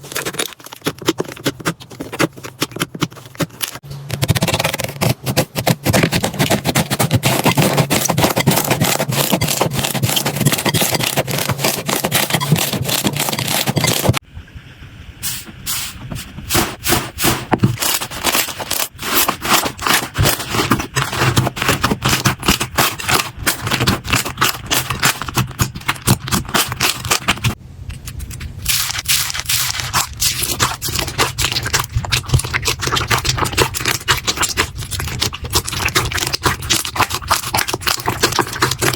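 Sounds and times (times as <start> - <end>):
slime squishing and popping: 17.8 - 38.9.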